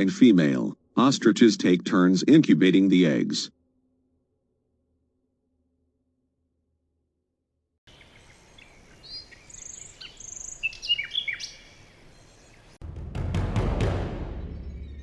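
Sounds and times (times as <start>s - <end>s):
small birds chirping: 7.9s - 12.8s
sudden loud deep sound: 12.8s - 15.0s.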